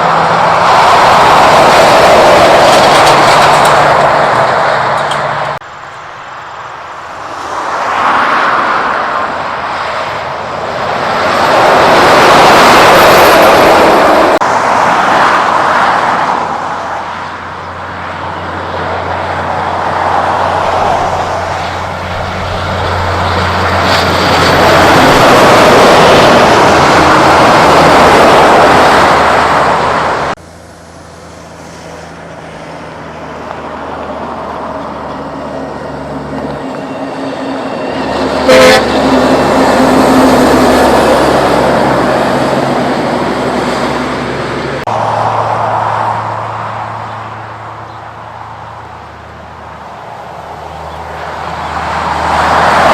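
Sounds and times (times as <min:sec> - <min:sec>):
trucks driving past: 0:00.0 - 0:52.9
low engine drone: 0:12.8 - 0:52.9.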